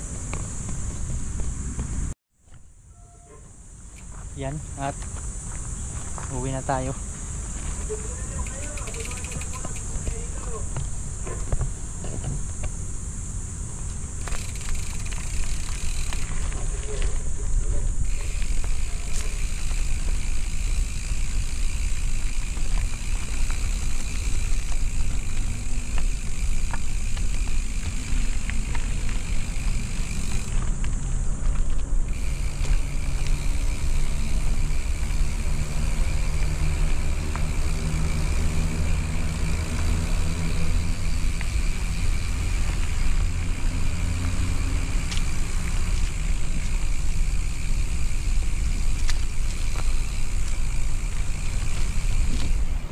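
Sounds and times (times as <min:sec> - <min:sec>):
vehicle engine running: 0:04.8 - 0:52.9.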